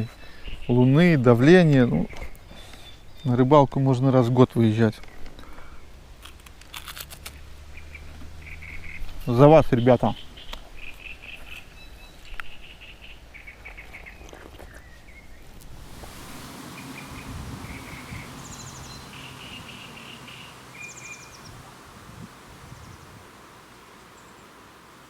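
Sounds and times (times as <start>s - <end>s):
steady background hiss: 15.5s - 25.0s
small birds chirping: 15.6s - 25.0s.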